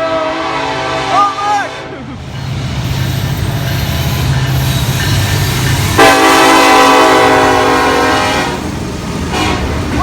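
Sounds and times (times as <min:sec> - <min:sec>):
train air horn chord: 0:00.0 - 0:01.9, 0:06.0 - 0:08.6, 0:09.3 - 0:09.7
locomotive engine rumbling: 0:00.0 - 0:10.0.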